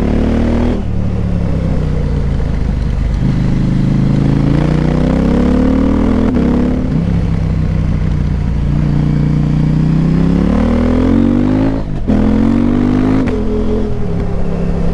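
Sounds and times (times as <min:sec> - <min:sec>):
motorcycle engine accelerating: 0:00.0 - 0:14.9.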